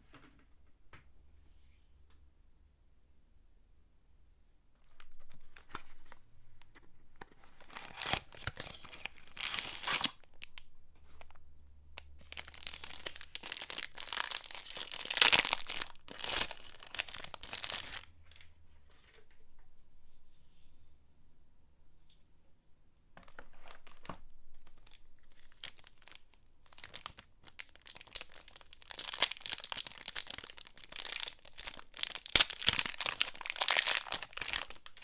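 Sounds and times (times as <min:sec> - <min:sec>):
packaging tearing and crinkling: 0:07.5 - 0:10.6, 0:12.2 - 0:18.1, 0:23.3 - 0:35.0.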